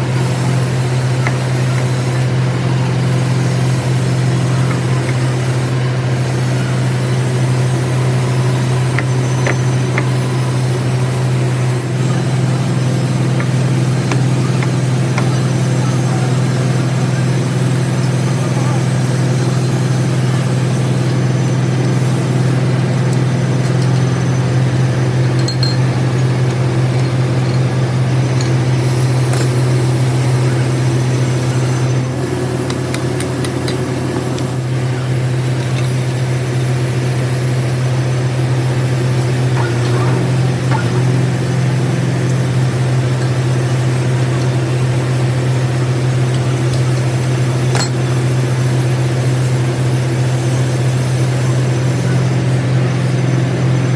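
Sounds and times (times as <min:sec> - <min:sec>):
machinery humming: 0:00.0 - 0:53.9
light metallic clinks: 0:25.2 - 0:29.8, 0:47.7 - 0:48.4.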